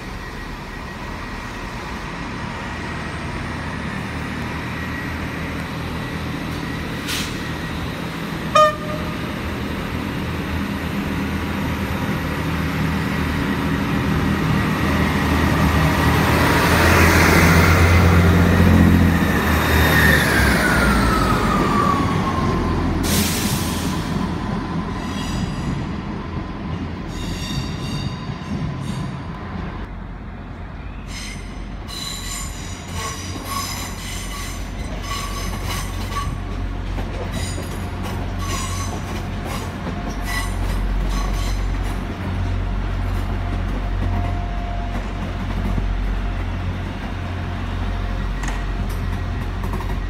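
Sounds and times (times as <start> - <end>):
falling train whine: 0.0 - 36.6
diesel train engine hum: 0.0 - 50.0
train horn toot: 8.5 - 9.3.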